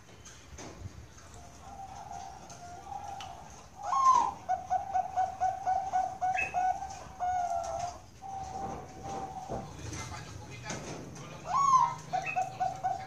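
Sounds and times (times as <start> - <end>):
dove cooing: 1.4 - 9.9, 11.3 - 13.0.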